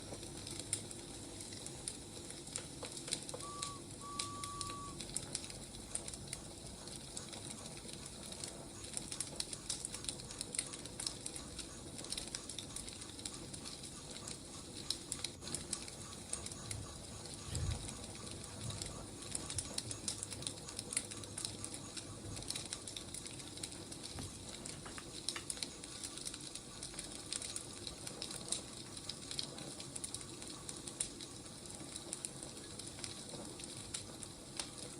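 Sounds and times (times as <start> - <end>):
wood fire crackling: 0.0 - 34.9
short whistle-like tones: 3.3 - 5.1.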